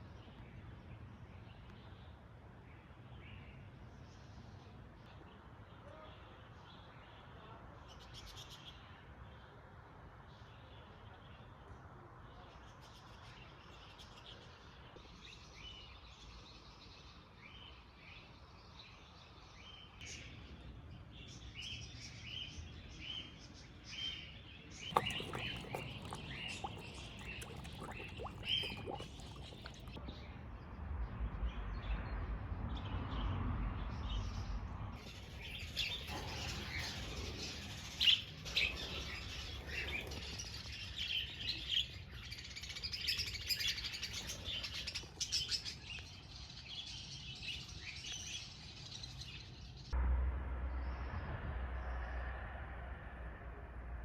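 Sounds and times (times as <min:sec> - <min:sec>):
birds chirping and calling: 0:35.0 - 0:46.2
low rumble: 0:50.0 - 0:54.0.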